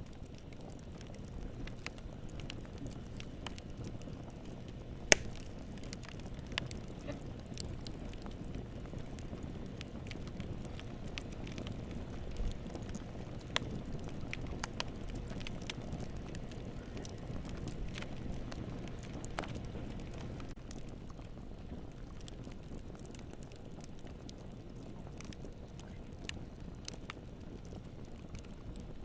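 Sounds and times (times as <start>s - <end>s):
fire crackling: 0.0s - 29.0s
low rumble of burning: 0.0s - 29.0s
loud wood pop: 5.1s - 5.4s.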